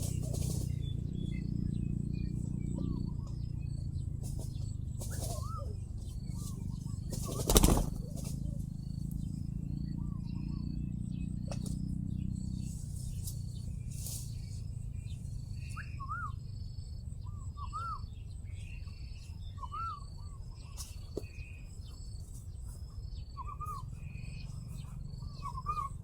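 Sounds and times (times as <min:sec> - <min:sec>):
wings fluttering: 0:00.0 - 0:00.8, 0:04.2 - 0:09.2, 0:12.6 - 0:14.6
small birds chirping: 0:00.0 - 0:26.0
steady low hum: 0:00.0 - 0:26.0
whistled bird calls: 0:04.5 - 0:13.2, 0:13.8 - 0:26.0.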